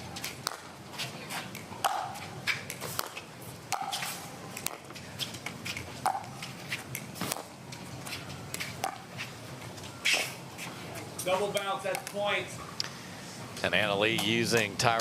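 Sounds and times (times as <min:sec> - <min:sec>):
footwork scuffs on hard court: 0:00.2 - 0:11.6.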